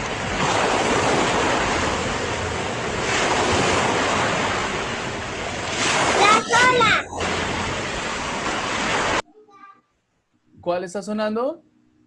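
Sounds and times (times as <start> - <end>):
ocean waves breaking on shore: 0.0 - 9.2.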